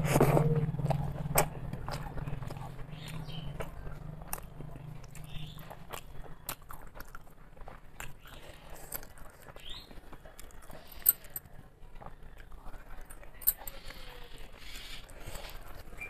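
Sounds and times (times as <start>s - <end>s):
wet chewing and lip smacks: 0.0s - 16.0s.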